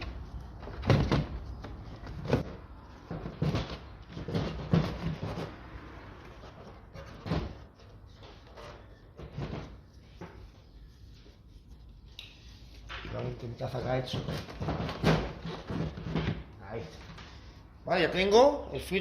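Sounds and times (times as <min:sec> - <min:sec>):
plastic knocks and clatter: 0:00.6 - 0:05.5, 0:14.1 - 0:16.5.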